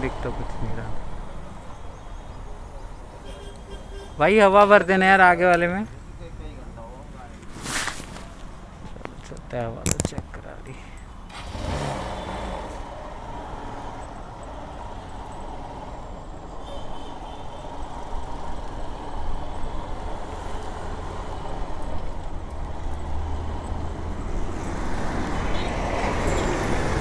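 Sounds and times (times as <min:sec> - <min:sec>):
motorcycle engine riding off: 0:11.3 - 0:14.0.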